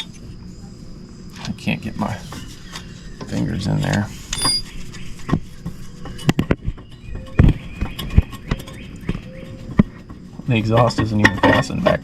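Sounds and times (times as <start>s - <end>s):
metal tools clinking: 4.3s - 4.6s.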